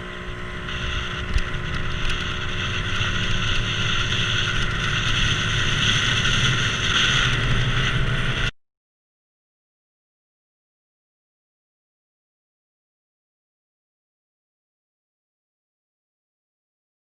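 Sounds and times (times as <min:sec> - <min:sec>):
low engine hum: 0:00.0 - 0:08.6
road and wind noise: 0:00.0 - 0:08.6.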